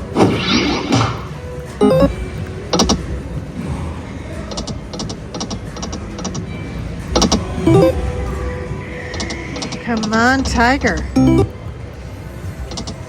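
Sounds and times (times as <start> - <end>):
casino background noise: 1.5 - 3.6, 4.5 - 8.2, 9.2 - 13.0
slot machine clicks: 1.8 - 2.1, 7.7 - 8.0, 11.2 - 11.6.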